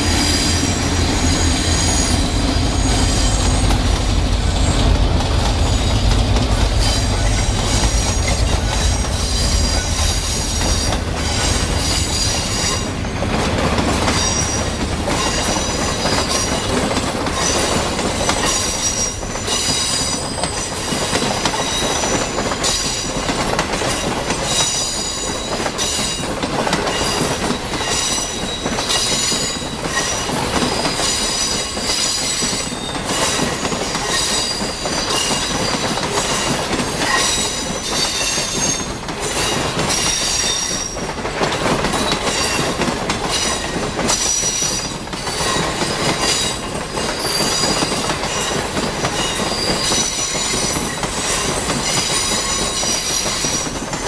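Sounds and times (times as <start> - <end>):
train wheels clacking over rail joints: 0.0 - 54.0
high-pitched wheel squeal: 0.1 - 4.0.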